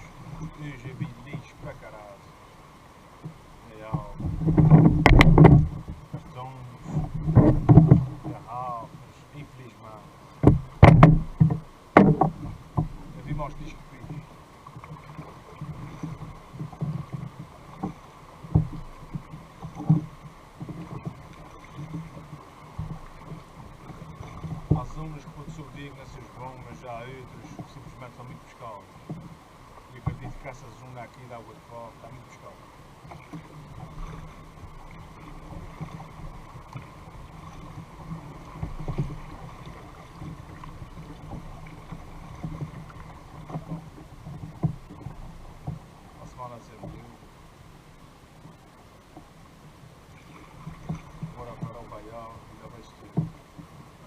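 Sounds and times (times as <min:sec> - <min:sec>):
water sloshing: 0:00.0 - 0:54.0
knocks against kayak hull: 0:03.2 - 0:08.4, 0:10.4 - 0:14.2, 0:14.8 - 0:25.7, 0:30.0 - 0:30.6, 0:33.1 - 0:45.8, 0:53.1 - 0:53.7.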